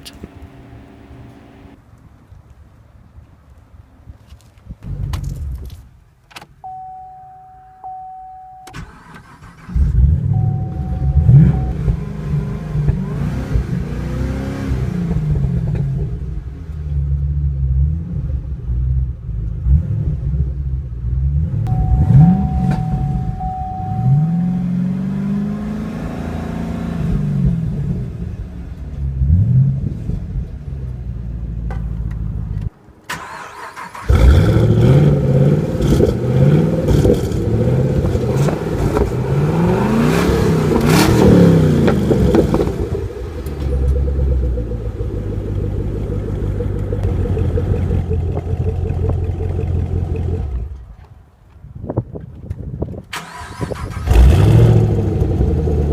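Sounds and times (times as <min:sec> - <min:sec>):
car engine revving: 0:00.0 - 0:01.8, 0:08.8 - 0:28.2, 0:33.1 - 0:50.9, 0:53.2 - 0:55.9.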